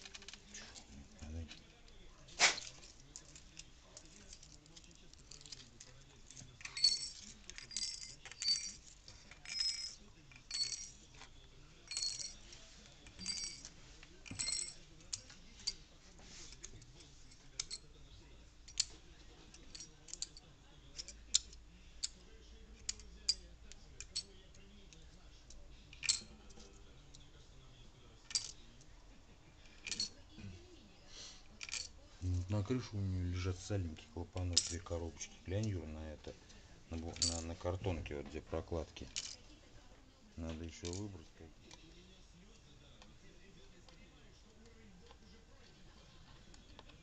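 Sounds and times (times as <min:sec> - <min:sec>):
small steel parts clinking: 0:02.5 - 0:15.9, 0:16.5 - 0:18.0, 0:18.6 - 0:22.2, 0:22.8 - 0:25.0, 0:25.9 - 0:26.8, 0:28.2 - 0:28.7, 0:29.6 - 0:30.2, 0:31.5 - 0:32.0, 0:33.6 - 0:36.2, 0:36.9 - 0:38.0, 0:38.8 - 0:39.5, 0:40.5 - 0:41.8.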